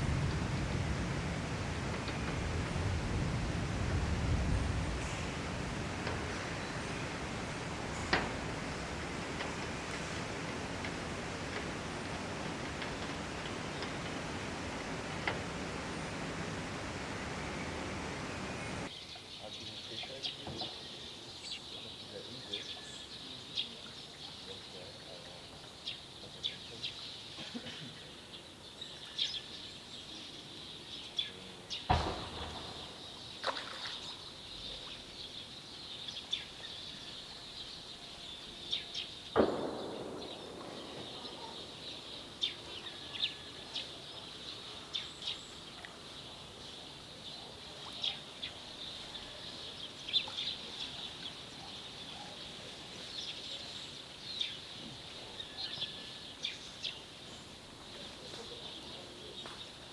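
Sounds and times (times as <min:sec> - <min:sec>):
small birds chirping: 0:00.0 - 0:59.9
sharp knocks: 0:03.9 - 0:18.9, 0:31.9 - 0:33.0.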